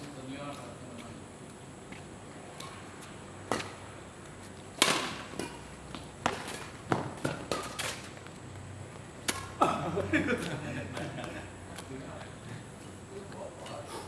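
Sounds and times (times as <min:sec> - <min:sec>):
rackets striking shuttlecock: 0:03.5 - 0:03.8, 0:04.8 - 0:08.2, 0:09.2 - 0:09.7.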